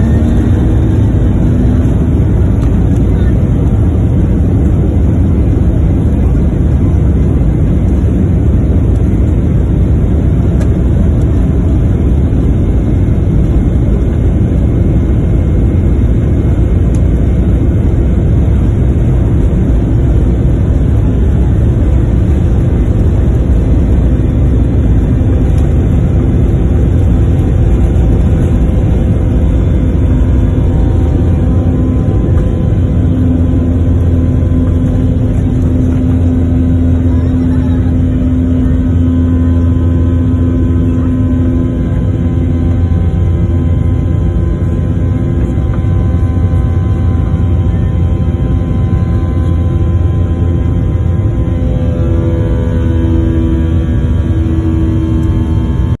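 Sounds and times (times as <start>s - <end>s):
airplane engines rumbling: 0.0s - 56.0s.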